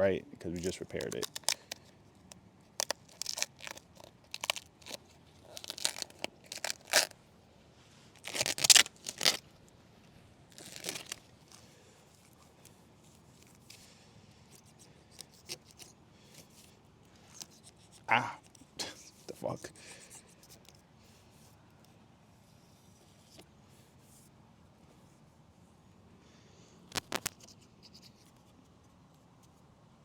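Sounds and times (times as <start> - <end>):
tape tearing off stone: 0.6 - 7.2, 8.2 - 9.5, 10.5 - 11.6, 26.9 - 27.6.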